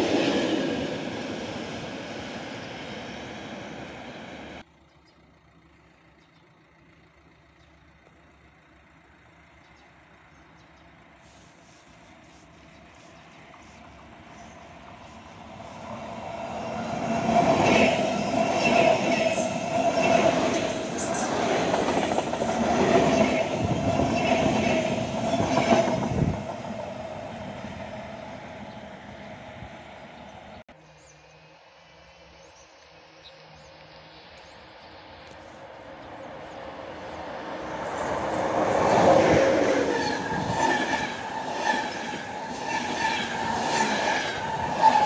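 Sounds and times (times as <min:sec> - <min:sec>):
train whine: 0:00.0 - 0:04.6, 0:08.0 - 0:45.0
train wheels clattering over rails: 0:16.3 - 0:26.9.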